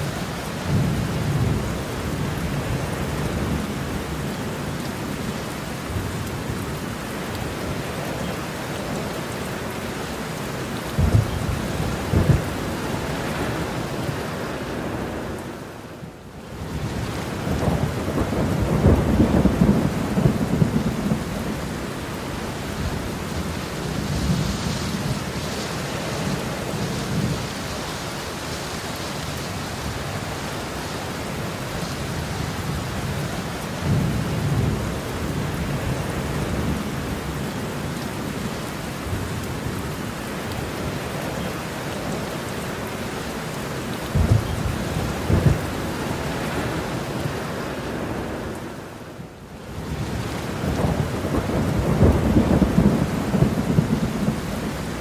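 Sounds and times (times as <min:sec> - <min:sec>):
heavy rain falling: 0:00.0 - 0:55.0
rolling thunder: 0:11.0 - 0:14.3, 0:16.7 - 0:21.8, 0:44.1 - 0:47.0, 0:49.8 - 0:55.0.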